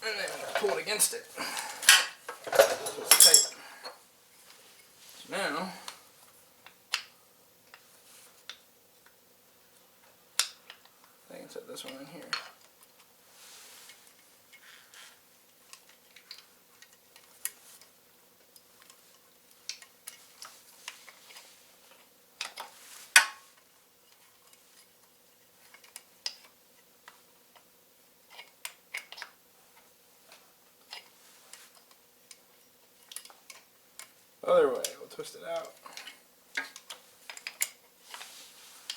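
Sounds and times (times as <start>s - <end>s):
metal parts and tools clinking: 1.9s - 3.6s.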